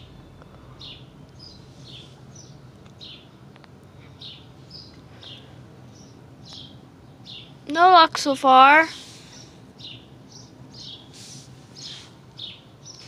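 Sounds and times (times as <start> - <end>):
bird chirping: 0.0 - 7.6, 8.9 - 13.0.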